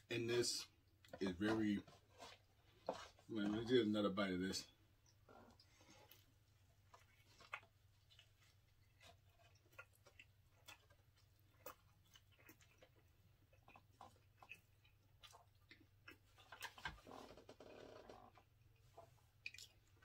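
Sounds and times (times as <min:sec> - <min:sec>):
chewing with mouth clicks: 0:05.0 - 0:17.0, 0:18.3 - 0:20.0.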